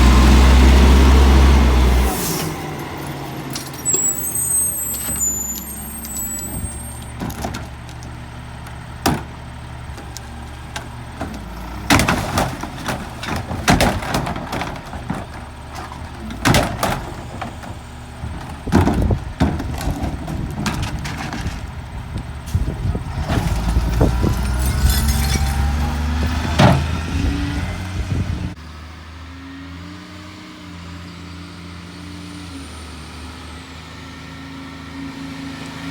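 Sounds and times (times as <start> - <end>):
garbage truck engine idling: 0.0 - 28.6
trash bangs and clatters: 1.2 - 28.6.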